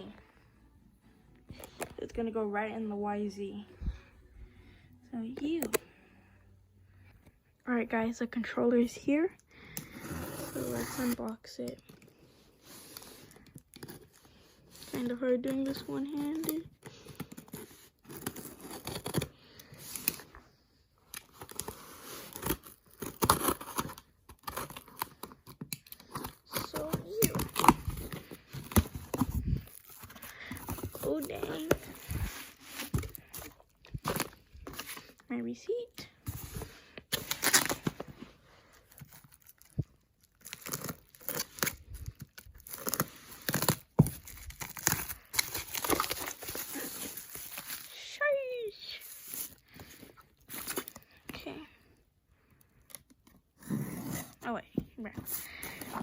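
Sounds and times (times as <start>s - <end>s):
packaging ripping and rustling: 14.8s - 20.2s, 21.1s - 35.2s, 36.3s - 38.1s, 38.8s - 48.1s.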